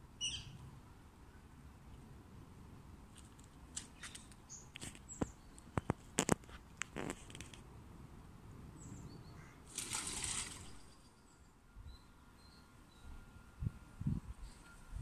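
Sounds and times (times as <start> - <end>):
high bird chirps: 0.2 - 0.6.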